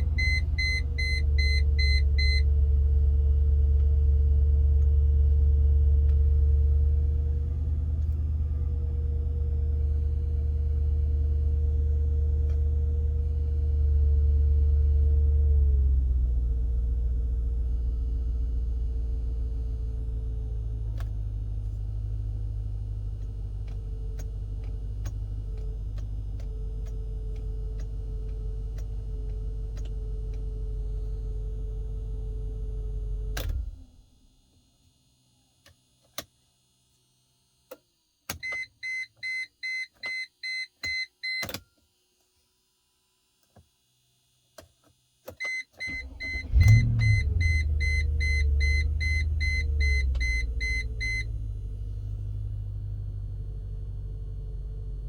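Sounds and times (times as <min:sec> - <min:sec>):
car engine idling: 0:16.0 - 0:33.4, 0:46.0 - 0:55.0
engine cranking and starting: 0:45.8 - 0:55.0.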